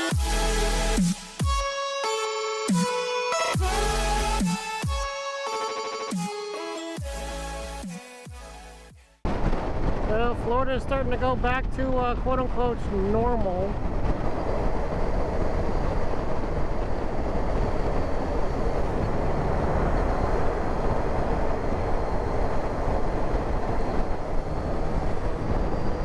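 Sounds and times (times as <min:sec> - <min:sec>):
wind and road noise: 0:09.2 - 0:26.0.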